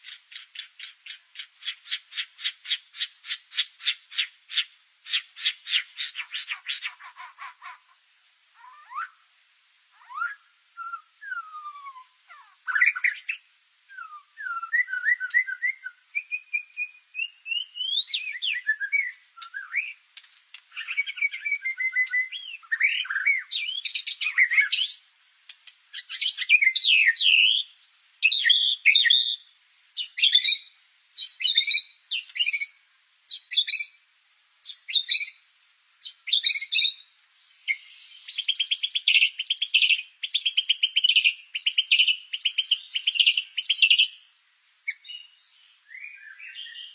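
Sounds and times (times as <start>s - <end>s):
bird singing: 10.0s - 20.0s, 20.7s - 25.0s, 36.0s - 46.9s.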